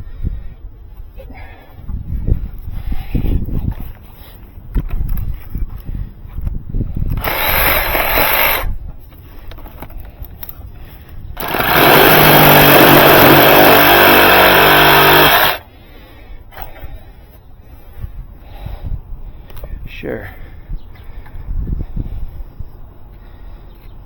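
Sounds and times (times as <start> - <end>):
motor hum: 7.1 - 8.7, 11.4 - 15.7
power tool running: 7.2 - 8.7, 11.4 - 15.6.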